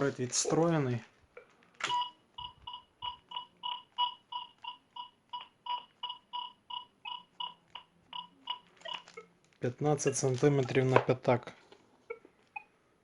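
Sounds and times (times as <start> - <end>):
metal detector beeping: 1.9 - 9.3.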